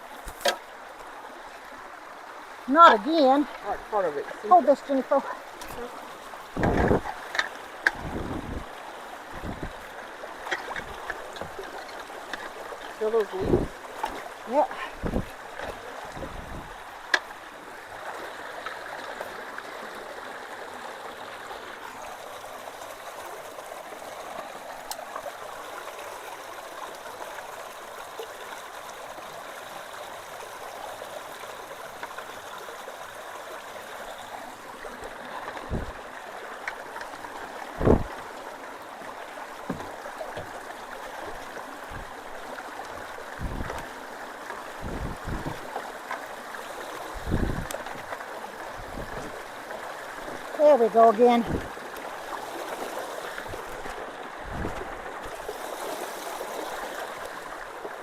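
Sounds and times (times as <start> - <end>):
creek water running: 0.0 - 58.0
dull thumps: 6.6 - 7.1.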